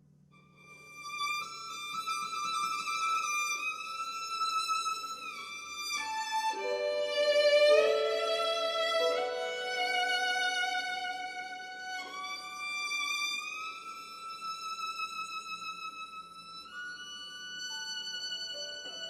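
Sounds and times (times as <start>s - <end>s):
solo violin slow notes: 0.4s - 19.0s.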